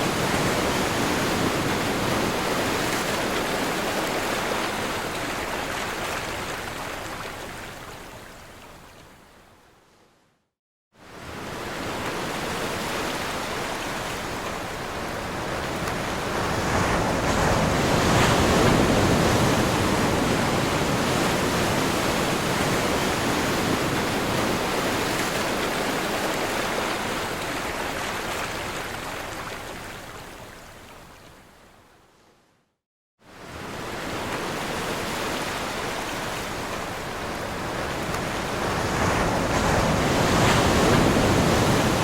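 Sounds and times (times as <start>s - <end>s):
ocean waves breaking: 11.2s - 29.8s, 33.3s - 42.0s.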